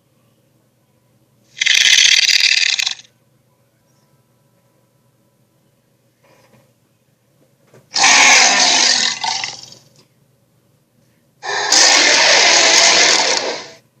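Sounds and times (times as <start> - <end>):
harsh creature roars: 8.0 - 9.7, 11.4 - 13.8.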